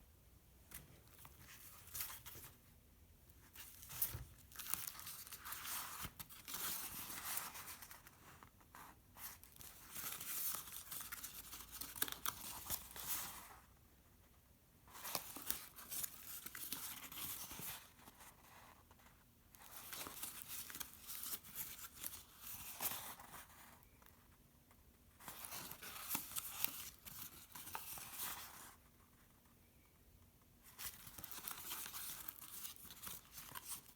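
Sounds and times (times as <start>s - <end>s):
paper pages rustling: 3.4s - 13.6s, 14.9s - 18.8s, 25.2s - 28.7s, 30.6s - 33.9s.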